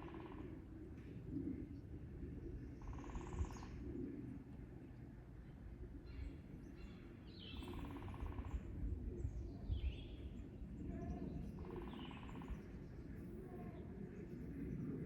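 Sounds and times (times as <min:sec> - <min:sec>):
songbird singing: 0:06.1 - 0:15.0.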